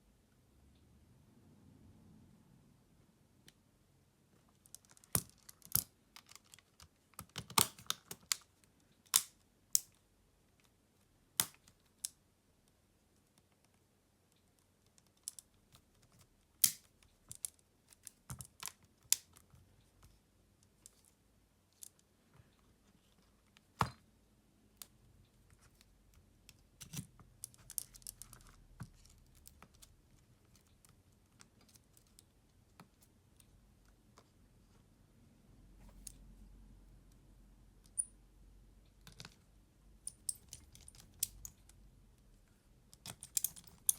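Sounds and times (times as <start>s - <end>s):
small repair tools clicking: 43.0s - 43.9s.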